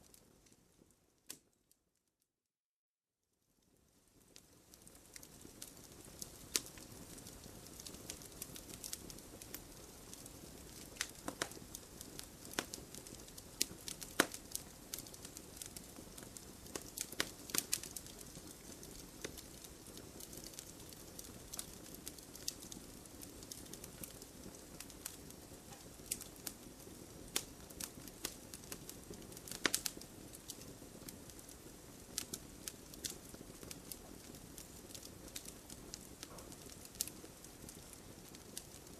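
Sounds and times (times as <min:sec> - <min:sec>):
low rush of flames: 0:03.8 - 0:38.9
bonfire pops and snaps: 0:04.4 - 0:38.9.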